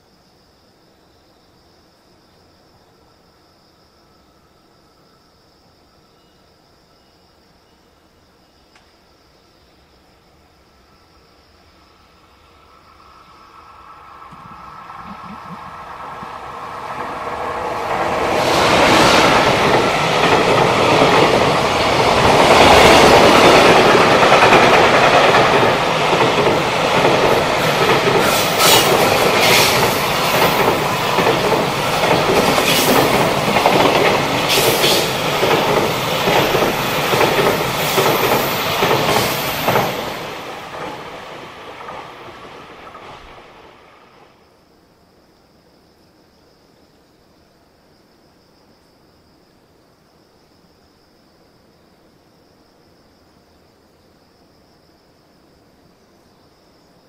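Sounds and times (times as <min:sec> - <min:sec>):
freight train rumbling past: 0:10.8 - 0:44.5
wheels clickety-clack: 0:17.9 - 0:41.1.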